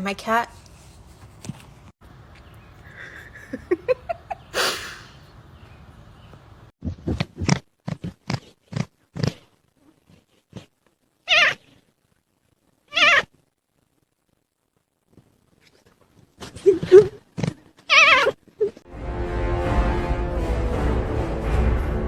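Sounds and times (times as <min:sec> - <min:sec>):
cat calling: 0:11.2 - 0:11.8, 0:12.9 - 0:13.3, 0:17.9 - 0:18.4.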